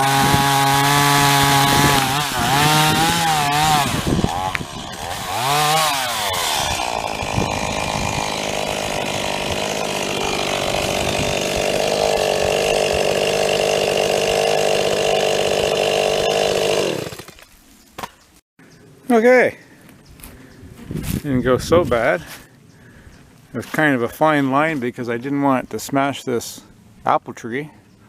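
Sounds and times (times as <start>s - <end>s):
chainsaw running at high revs: 0.0s - 17.4s.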